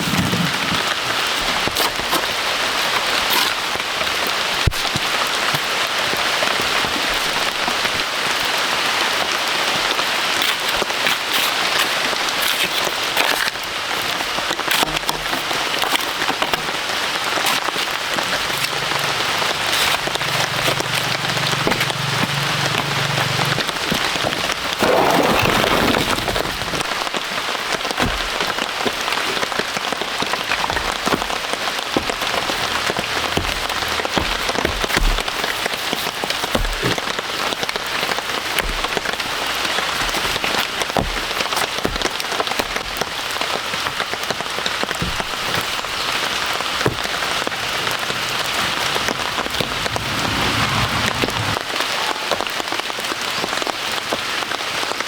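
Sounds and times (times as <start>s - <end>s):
heavy rain falling: 13.5s - 55.0s
raindrops striking sharply: 46.0s - 55.0s.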